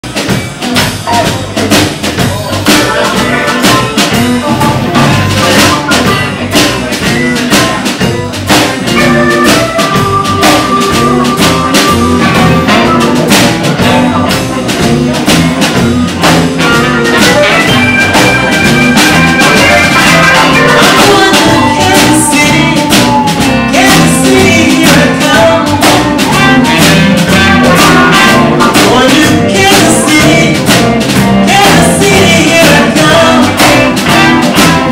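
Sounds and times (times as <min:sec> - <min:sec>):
drum kit beat: 0:00.0 - 0:34.9
live band playing: 0:00.0 - 0:34.9.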